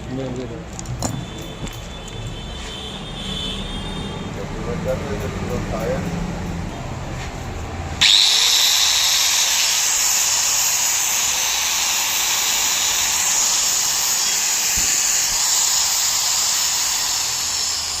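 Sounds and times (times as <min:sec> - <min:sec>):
angle grinder whining: 0:08.0 - 0:18.0.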